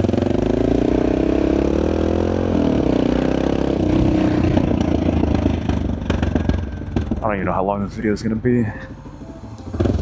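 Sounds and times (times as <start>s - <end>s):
motorcycle engine shifting gears: 0.0s - 7.4s, 9.6s - 10.0s.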